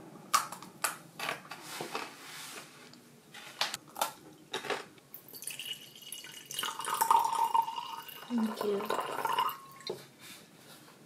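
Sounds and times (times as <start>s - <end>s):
liquid trickling into a glass: 5.3s - 10.0s.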